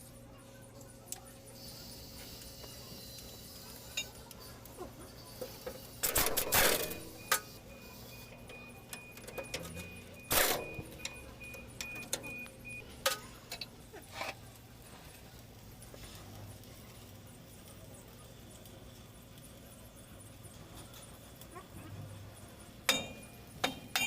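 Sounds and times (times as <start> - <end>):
metal tools clinking: 22.6 - 24.0.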